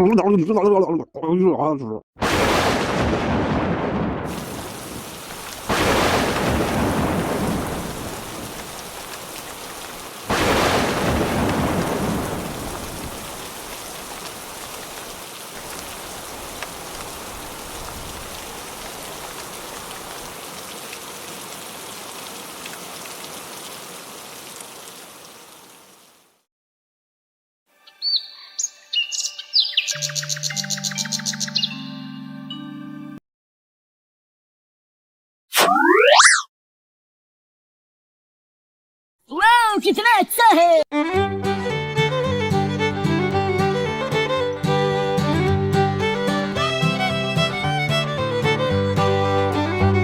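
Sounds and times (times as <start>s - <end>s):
thunder claps rumbling: 2.2s - 20.1s
steady rain: 2.2s - 26.4s, 41.0s - 50.0s.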